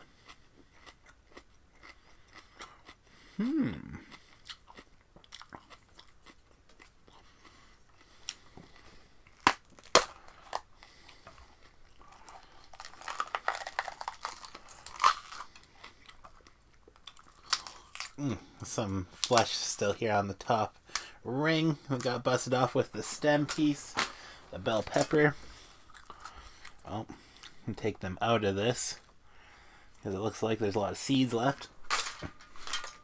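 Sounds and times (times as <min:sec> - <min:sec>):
chewing crisp vegetables: 0:00.0 - 0:19.8, 0:21.7 - 0:27.8.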